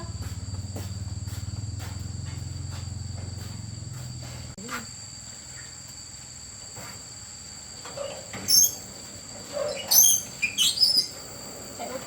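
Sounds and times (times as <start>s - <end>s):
low machine hum: 0.0s - 9.5s
crickets trilling: 0.0s - 12.0s.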